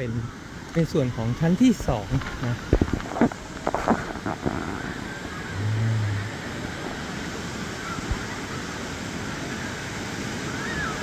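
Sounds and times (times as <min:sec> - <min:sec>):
waterfall rushing: 0:00.9 - 0:11.0
brief low hum: 0:05.5 - 0:06.6.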